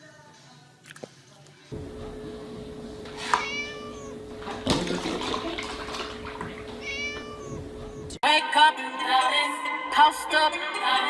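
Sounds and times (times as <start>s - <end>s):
kitten meowing: 3.1s - 4.3s, 6.4s - 8.2s
milk pouring into plastic tub: 4.2s - 7.4s.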